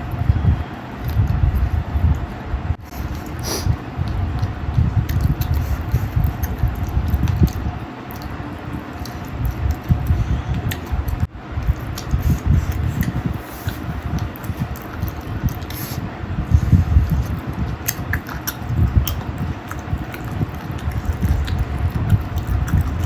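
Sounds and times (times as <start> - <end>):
person chewing food: 0.0 - 23.0
wet mouth clicks and smacks: 3.1 - 8.4, 9.0 - 16.0, 16.9 - 23.0.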